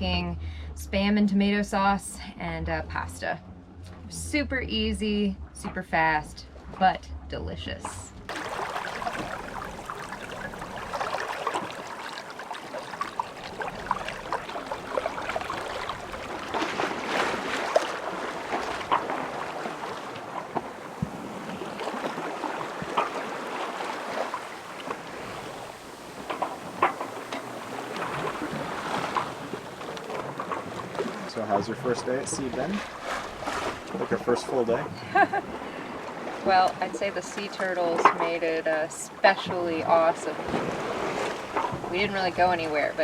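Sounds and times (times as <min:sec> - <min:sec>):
water splashing against boat hull: 0:07.6 - 0:43.0.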